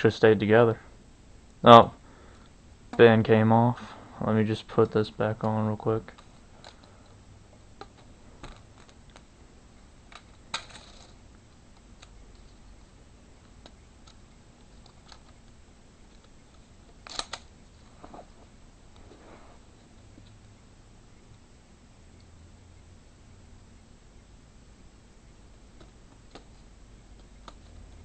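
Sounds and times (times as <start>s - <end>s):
plastic pieces clicking: 10.1s - 11.2s, 13.4s - 17.5s.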